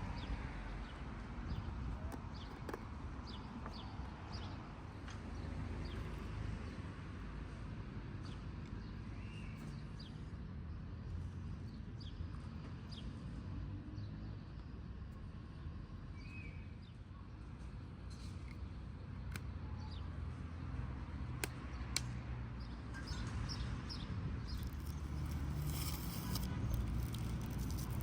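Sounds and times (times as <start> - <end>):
small birds chirping: 22.6 - 28.0.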